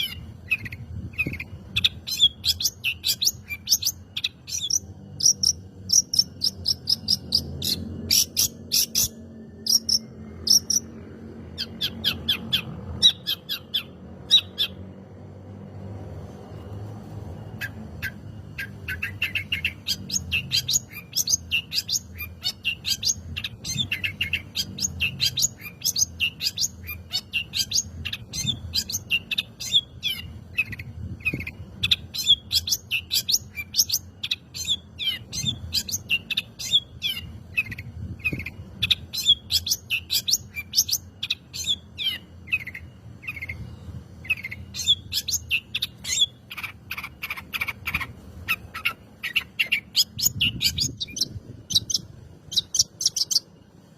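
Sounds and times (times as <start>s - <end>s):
bird singing rapid chirps and trills: 0.0s - 16.2s, 17.0s - 53.9s.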